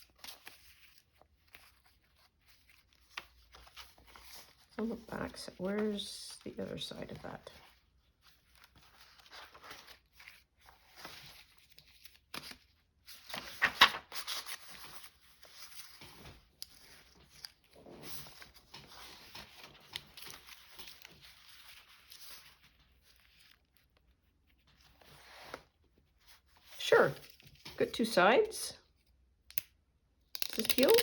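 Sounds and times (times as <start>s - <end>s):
paper rustling and crinkling: 0.0s - 27.9s.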